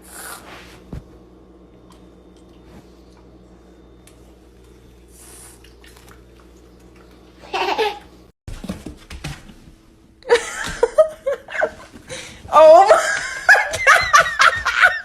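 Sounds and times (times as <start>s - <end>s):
low steady hum: 0.0s - 15.0s
person laughing: 10.3s - 15.0s.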